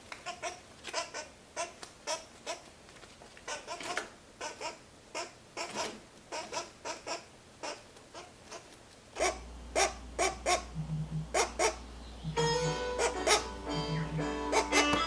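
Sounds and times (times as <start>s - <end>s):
young woodpecker calling: 3.5s - 15.0s
steady low hum: 9.2s - 14.8s.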